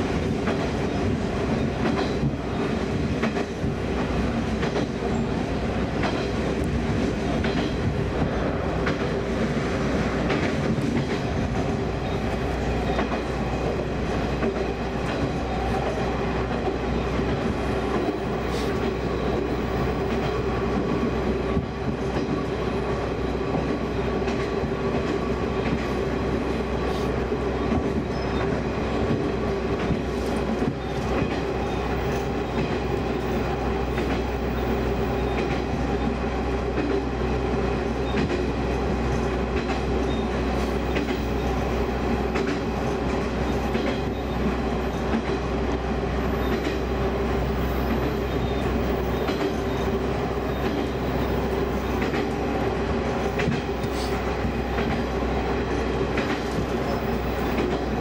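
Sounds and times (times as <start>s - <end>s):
wheels rumbling on rails: 0.0s - 58.0s.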